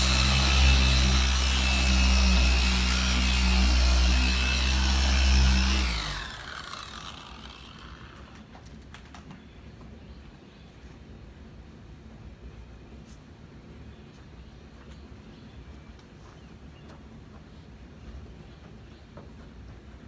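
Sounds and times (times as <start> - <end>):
electric buffer whining: 0.0 - 8.4.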